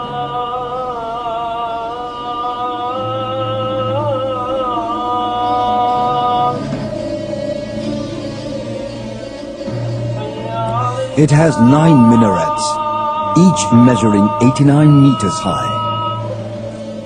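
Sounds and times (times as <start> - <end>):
low steady drone: 1.8 - 17.0
man chanting: 10.6 - 16.4.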